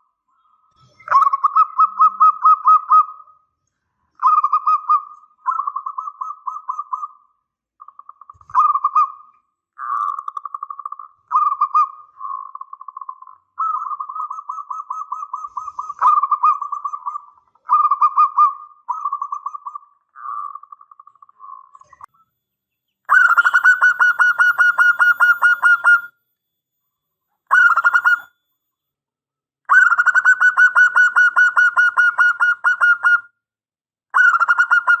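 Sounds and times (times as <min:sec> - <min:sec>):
dove cooing: 0:09.8 - 0:21.0.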